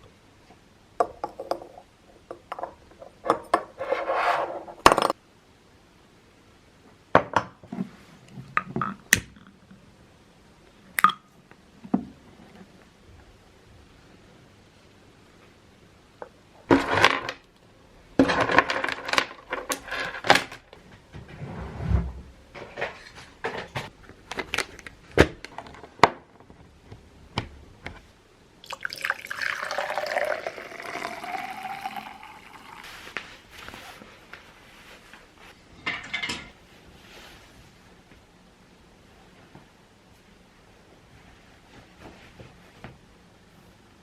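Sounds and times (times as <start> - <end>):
liquid pouring into vessel: 28.6 - 33.1
dishes and utensils clinking: 35.7 - 36.6.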